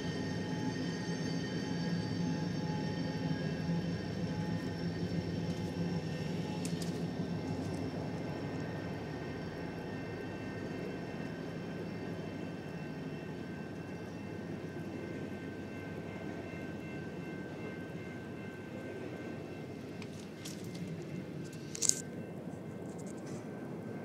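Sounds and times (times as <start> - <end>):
train rumbling past: 0.0 - 24.0.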